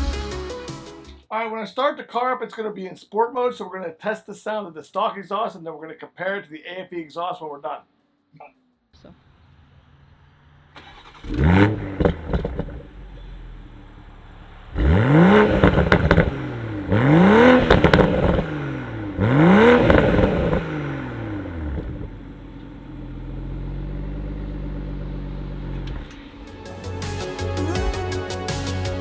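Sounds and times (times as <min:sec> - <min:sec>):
exhaust crackles: 0:09.0 - 0:29.0
car engine idling: 0:09.2 - 0:29.0
car engine revving: 0:09.2 - 0:29.0.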